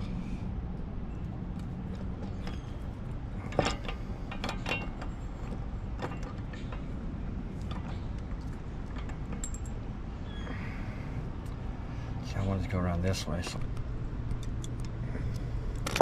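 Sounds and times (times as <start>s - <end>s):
steady low rumble: 0.0s - 16.0s
small metal clicks and clinks: 7.6s - 9.8s.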